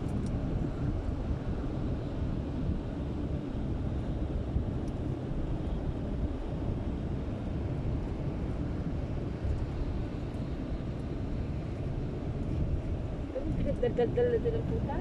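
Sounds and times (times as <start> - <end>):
moving car rumble: 0.0 - 15.0.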